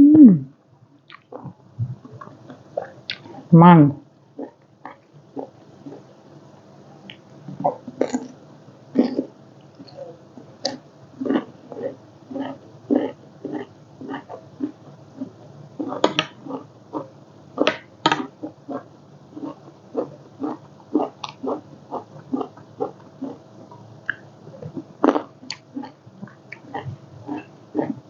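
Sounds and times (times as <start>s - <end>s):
person chewing and smacking: 2.2s - 3.4s, 10.6s - 28.0s.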